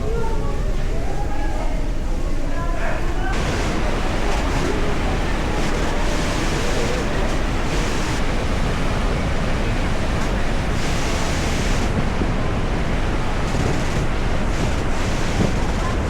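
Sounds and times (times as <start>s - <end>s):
waterfall roaring: 3.3s - 16.0s
wind buffeting microphone: 3.3s - 16.0s.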